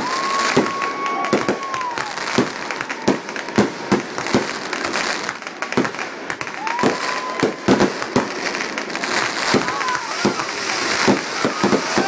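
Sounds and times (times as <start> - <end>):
firework whistle: 0.0 - 4.5, 6.4 - 8.3, 9.2 - 12.0
fireworks bangs: 0.0 - 12.0
fireworks crackle: 0.0 - 12.0.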